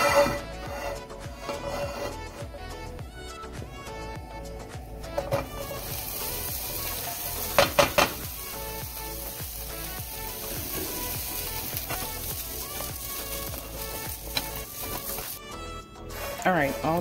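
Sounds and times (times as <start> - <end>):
food sizzling in a frying pan: 5.4 - 15.4
spatula pushing food: 9.0 - 15.4.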